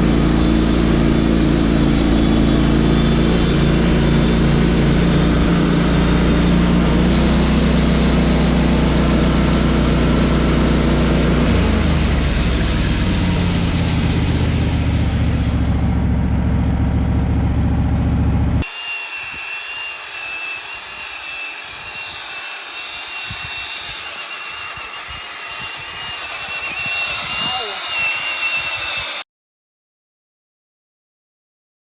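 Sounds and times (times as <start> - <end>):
engine running: 0.0 - 29.2
hiss: 18.6 - 29.2
thin high whine: 18.6 - 29.2.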